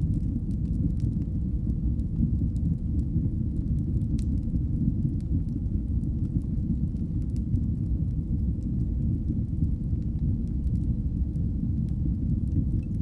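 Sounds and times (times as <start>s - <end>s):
fire crackles and pops: 0.0s - 13.0s
fire rumbling in fireplace: 0.0s - 13.0s.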